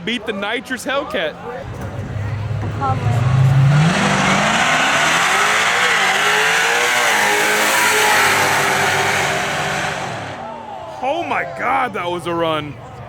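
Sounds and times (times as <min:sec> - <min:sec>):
drag racing engine at full throttle: 0:01.6 - 0:10.5.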